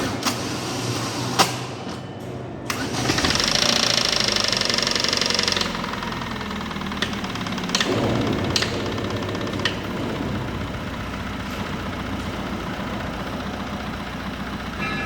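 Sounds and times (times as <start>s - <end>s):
car engine running: 3.2s - 15.0s.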